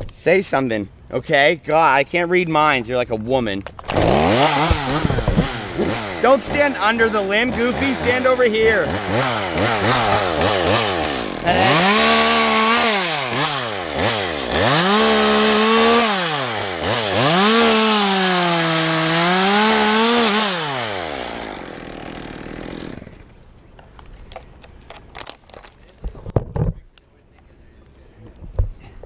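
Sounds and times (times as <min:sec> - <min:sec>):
chainsaw revving while cutting: 0:03.9 - 0:23.2.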